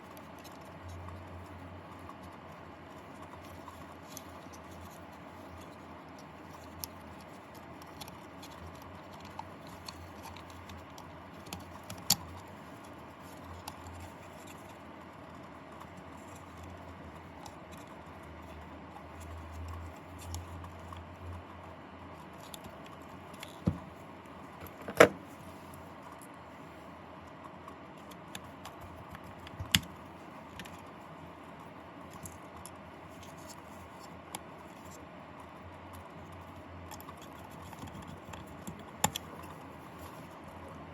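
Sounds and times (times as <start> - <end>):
small clicks and taps: 28.0 - 30.9, 35.9 - 40.2.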